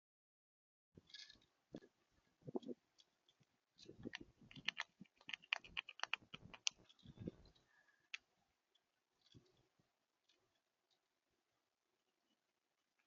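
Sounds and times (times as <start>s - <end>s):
clicks and taps at bird feeder: 4.0s - 6.9s.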